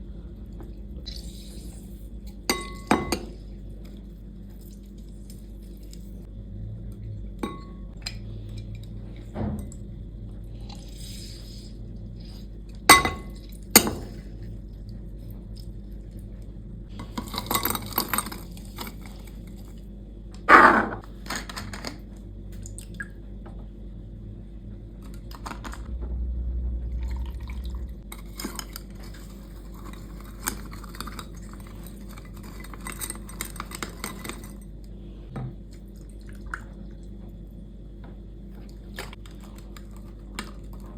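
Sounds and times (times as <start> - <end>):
glassware and utensils clinking: 2.5 - 3.3, 7.4 - 7.8, 12.9 - 14.0
low hum: 5.6 - 17.0, 23.2 - 30.3.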